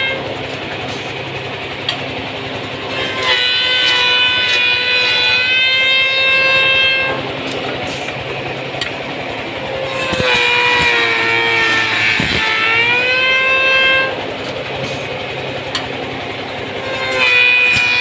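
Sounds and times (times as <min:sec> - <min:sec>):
machine motor whining: 0:00.0 - 0:18.0.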